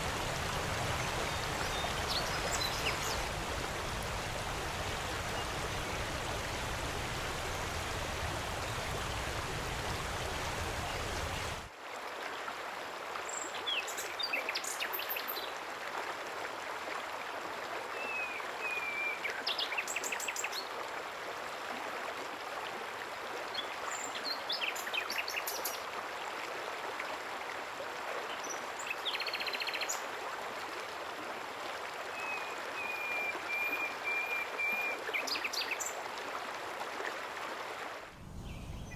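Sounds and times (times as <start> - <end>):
deeper water rush: 0.0 - 11.7, 37.4 - 38.9
flowing water: 0.0 - 38.9
small birds chirping: 38.3 - 38.9.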